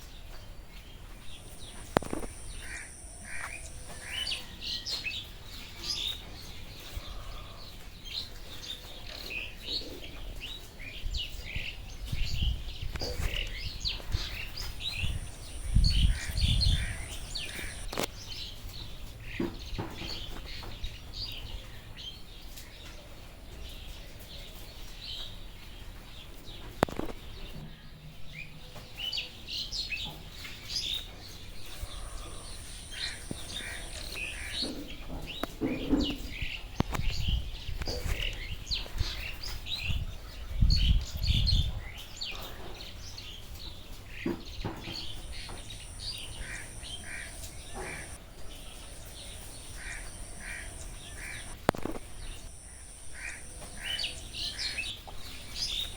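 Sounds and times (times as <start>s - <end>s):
birds chirping and calling: 0.4s - 18.6s, 26.9s - 55.9s
high steady tone: 1.2s - 4.4s, 14.6s - 17.9s, 45.0s - 48.2s, 49.4s - 54.8s.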